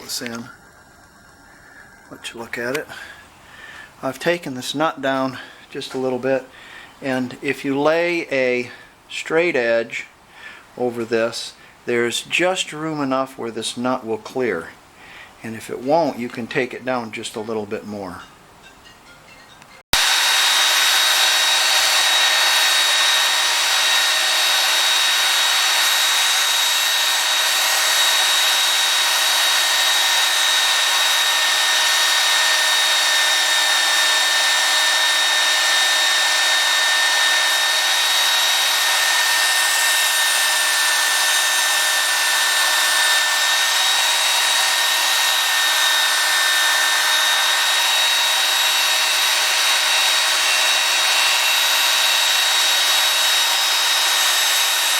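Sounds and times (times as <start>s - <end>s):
belt sander motor whine: 20.0s - 54.9s
sanding belt hissing: 20.0s - 54.9s.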